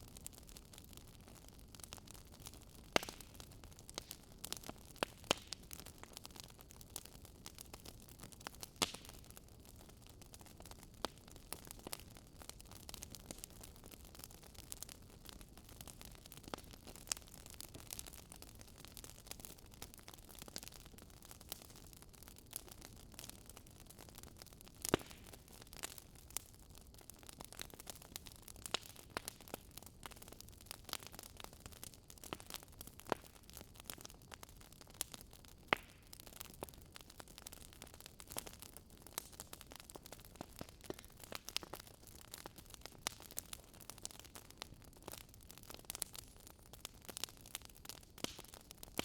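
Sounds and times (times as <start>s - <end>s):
wood fire crackling: 0.0s - 49.0s.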